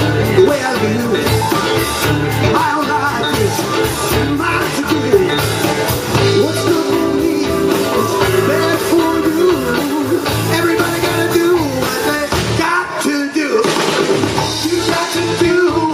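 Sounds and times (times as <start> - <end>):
repeating bass line: 0.0 - 12.9
bending lead melody line: 0.0 - 13.0
live blues band playing: 0.0 - 15.9.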